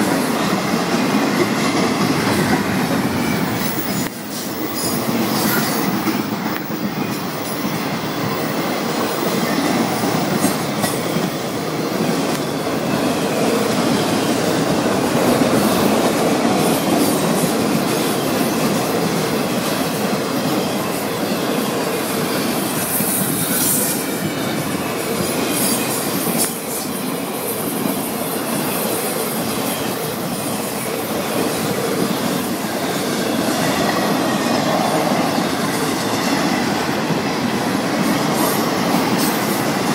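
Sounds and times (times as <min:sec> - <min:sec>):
freight train wheels on rails: 0:00.0 - 0:39.9
high wheel squeal: 0:02.4 - 0:14.7.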